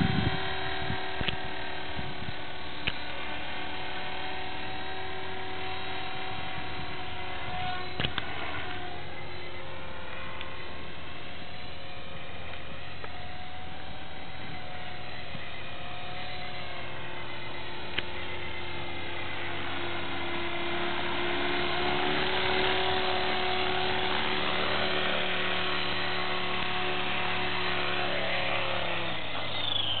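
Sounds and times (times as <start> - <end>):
rc helicopter motor whine: 0.0 - 30.0.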